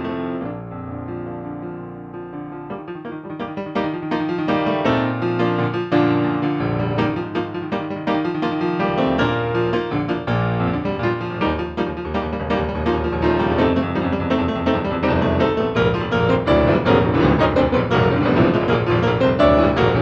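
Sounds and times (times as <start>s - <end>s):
solo piano playing fast: 0.0s - 20.0s.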